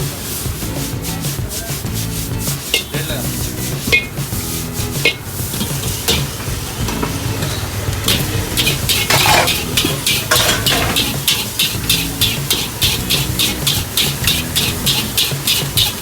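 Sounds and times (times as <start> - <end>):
metal spatula scraping a pan: 0.0 - 16.0
noodles sizzling in a wok: 0.0 - 16.0.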